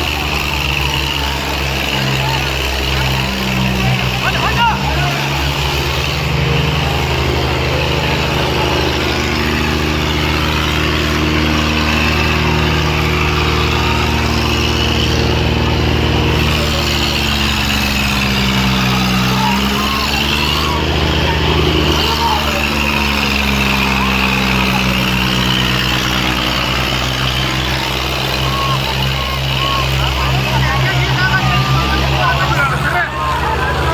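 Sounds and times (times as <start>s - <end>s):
tractor engines running hard: 0.0s - 33.9s.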